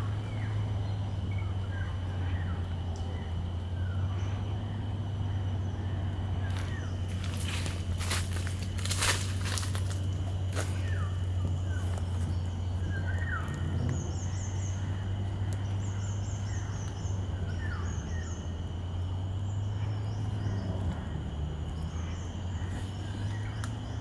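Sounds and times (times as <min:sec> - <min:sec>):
birds calling: 0:00.0 - 0:24.0
low steady rumble: 0:00.0 - 0:24.0.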